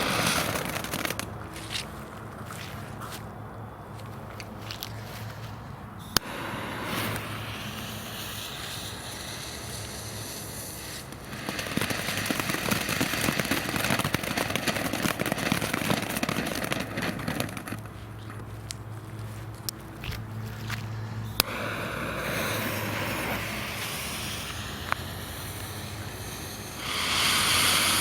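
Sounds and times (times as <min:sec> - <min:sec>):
firework fountain hissing and crackling: 0:00.0 - 0:01.8, 0:06.1 - 0:18.2, 0:21.0 - 0:28.0.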